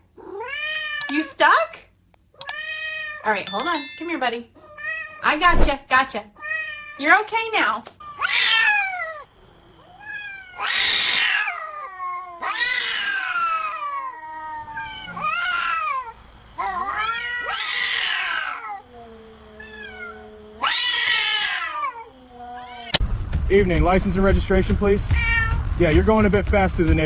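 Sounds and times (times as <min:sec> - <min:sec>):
cat meowing: 0:08.1 - 0:09.2, 0:09.9 - 0:18.8.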